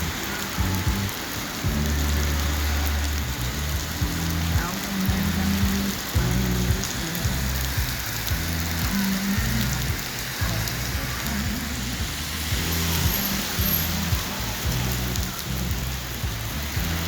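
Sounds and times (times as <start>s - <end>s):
heavy rain on pavement: 0.0s - 17.0s
music with deep bass and beat: 0.0s - 17.0s.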